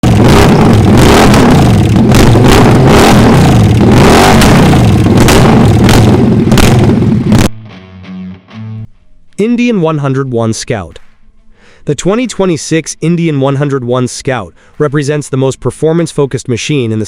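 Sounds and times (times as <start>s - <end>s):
motorcycle engine revving: 0.0s - 7.5s.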